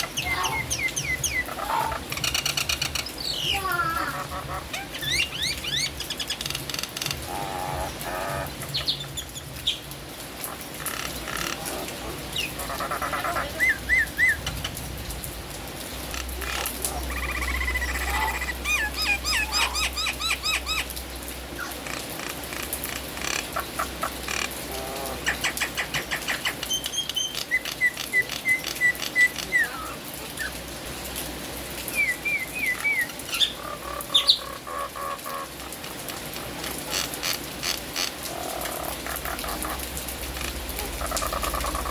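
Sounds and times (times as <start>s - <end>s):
rain hissing: 0.0s - 41.9s.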